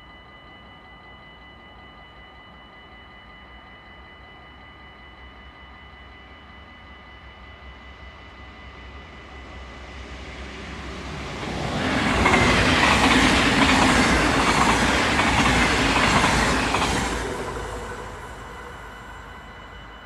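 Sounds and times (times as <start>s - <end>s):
passenger train passing: 8.2s - 20.0s.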